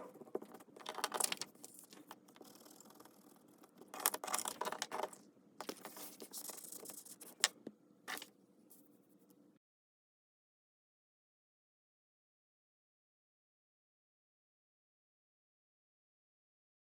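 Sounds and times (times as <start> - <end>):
paper rustling: 4.0 - 7.5.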